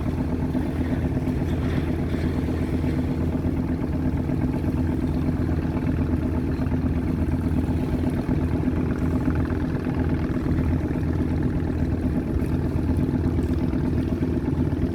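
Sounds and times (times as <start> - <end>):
boat engine running: 0.0 - 14.9.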